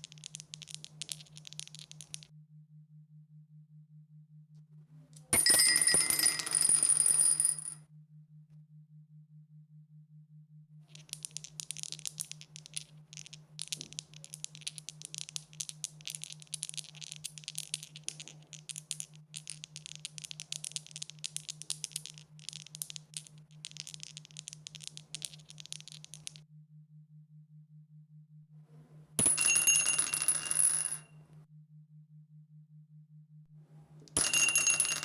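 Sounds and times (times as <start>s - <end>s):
dice rattling: 0.0s - 2.3s, 10.9s - 26.4s.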